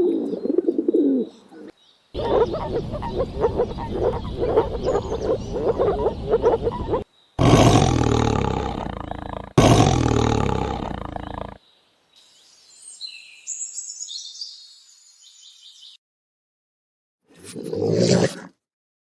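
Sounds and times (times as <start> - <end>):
faint high-pitched chirping: 0.2 - 7.4
big cat roaring: 4.8 - 11.6, 17.4 - 18.5.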